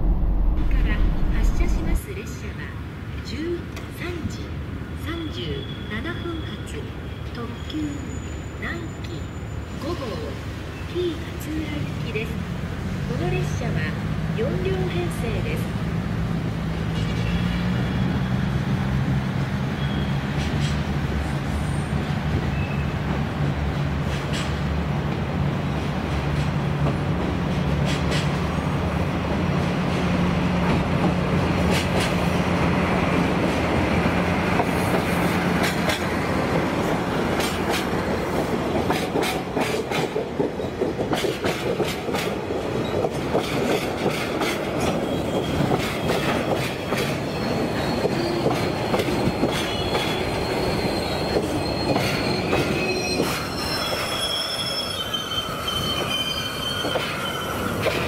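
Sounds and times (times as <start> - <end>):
locomotive engine droning: 0.0 - 2.0
wheels clacking over rail joints: 33.4 - 54.0
wagon wheels squealing: 44.9 - 58.0.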